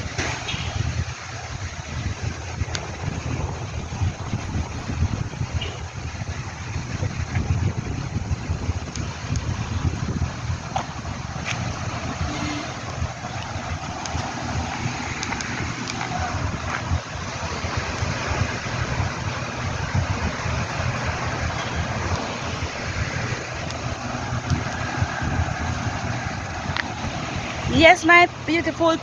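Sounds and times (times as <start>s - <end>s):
outdoor hiss: 0.0s - 29.0s
wind buffeting microphone: 0.0s - 29.0s.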